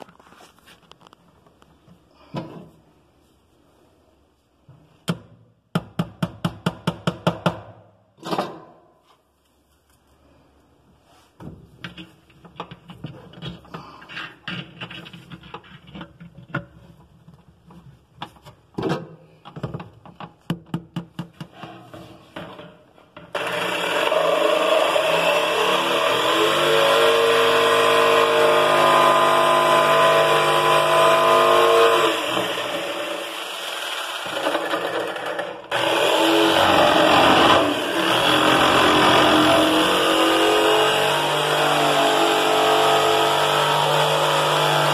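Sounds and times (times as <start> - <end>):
electric jigsaw running: 23.3 - 44.9.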